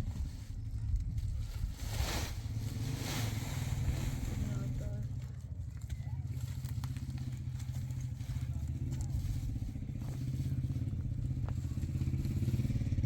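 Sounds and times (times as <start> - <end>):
engine running with rapid pulsing: 6.2 - 13.0.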